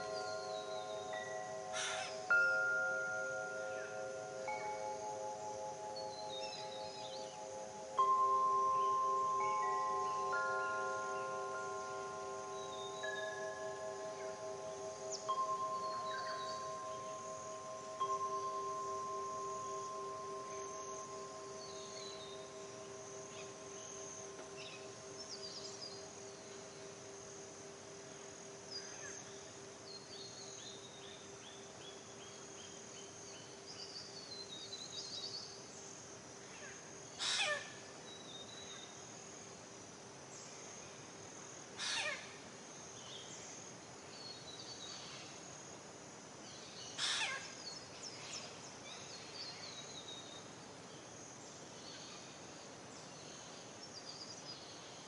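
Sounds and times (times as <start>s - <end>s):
birds chirping and calling: 0.0s - 24.9s, 47.0s - 47.5s
descending bird trill: 0.0s - 26.0s
singing bowl ringing: 0.0s - 27.2s
high insect drone: 0.0s - 55.0s.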